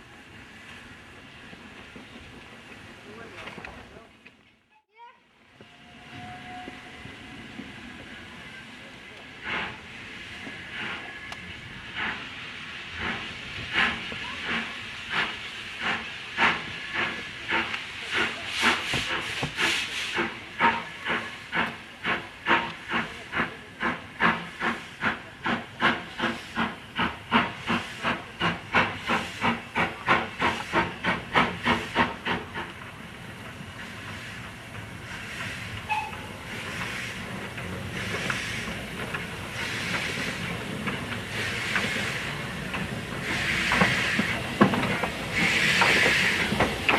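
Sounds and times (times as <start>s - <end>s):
steam locomotive exhaust chuffs: 9.2s - 46.9s.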